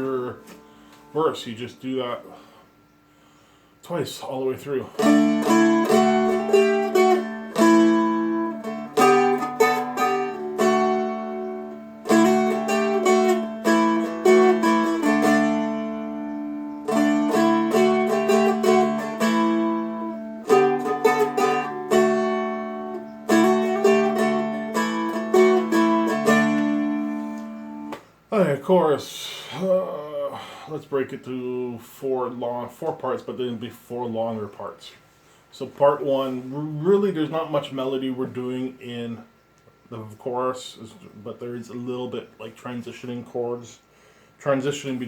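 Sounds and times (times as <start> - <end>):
drone strings ringing: 4.8 - 28.3
dulcimer melody: 5.0 - 27.9.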